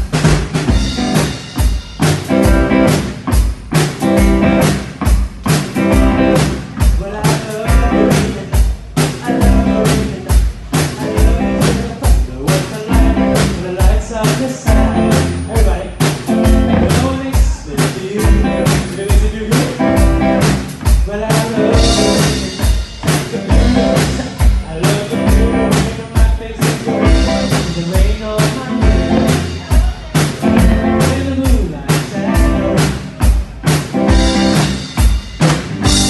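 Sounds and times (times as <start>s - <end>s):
drum kit beat: 0.0s - 36.0s
live band playing blues-rock: 0.0s - 36.0s.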